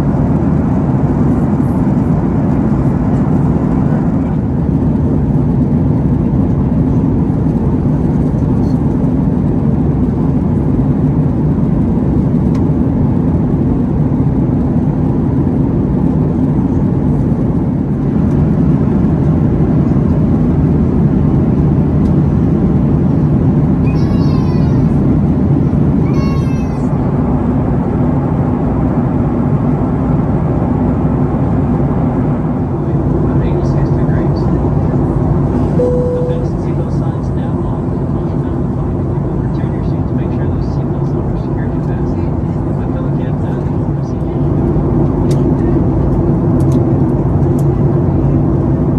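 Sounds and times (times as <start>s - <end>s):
airplane cabin engine and airflow rush: 0.0s - 48.9s
high-pitched cries: 23.9s - 24.9s.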